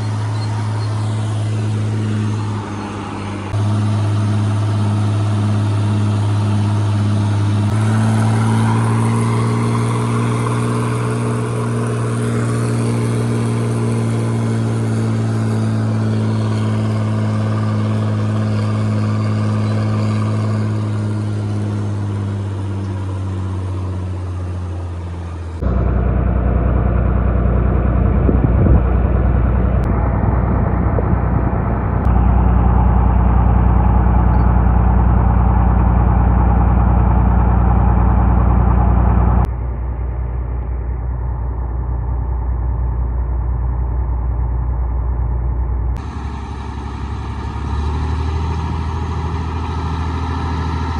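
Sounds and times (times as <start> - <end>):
deep engine rumble: 0.0 - 50.9
farm machinery engine running: 0.0 - 50.9.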